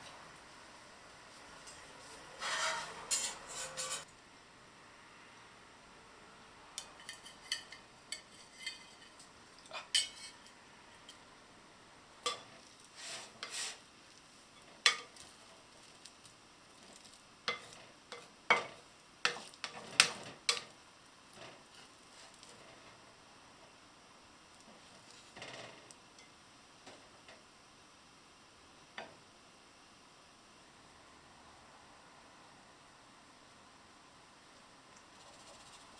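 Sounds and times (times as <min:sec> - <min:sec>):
utensils clinking on dishes: 0:02.4 - 0:04.1, 0:06.8 - 0:11.2.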